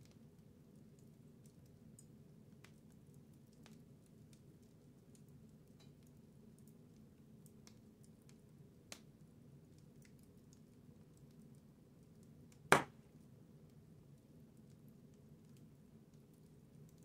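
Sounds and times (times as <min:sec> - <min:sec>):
wood fire crackling: 0:00.0 - 0:17.0
fire snap: 0:01.4 - 0:10.6, 0:12.2 - 0:17.0
loud sharp pop from fire: 0:12.7 - 0:13.0.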